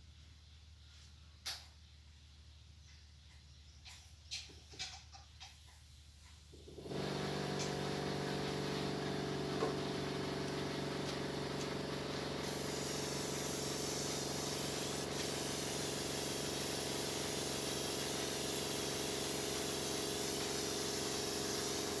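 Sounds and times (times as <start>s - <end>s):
machine motor humming: 6.7s - 22.0s
hiss: 6.9s - 22.0s.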